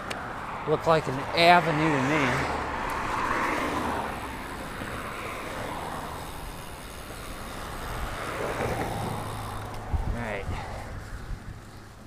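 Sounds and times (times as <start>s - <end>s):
bicycle road noise: 0.0s - 12.0s
wind on microphone: 7.9s - 11.8s.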